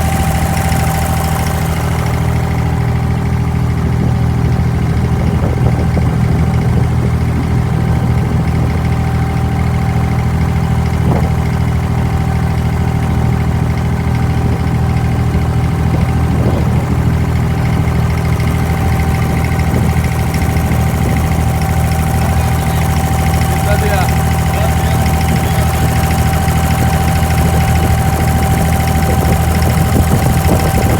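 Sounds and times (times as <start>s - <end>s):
boat diesel engine running: 0.0s - 30.9s.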